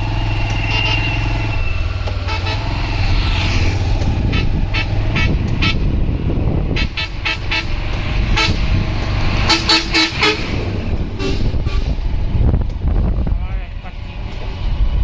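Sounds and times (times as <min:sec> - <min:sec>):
vehicle engine low rumble: 0:00.0 - 0:15.0
vehicle horns tooting: 0:00.4 - 0:03.1, 0:04.2 - 0:08.8, 0:09.4 - 0:12.1.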